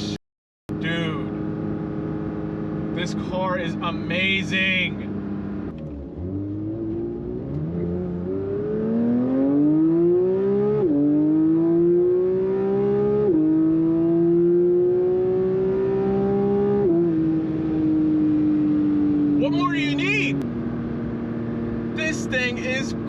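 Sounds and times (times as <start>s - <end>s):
car engine accelerating hard: 0.7s - 23.0s.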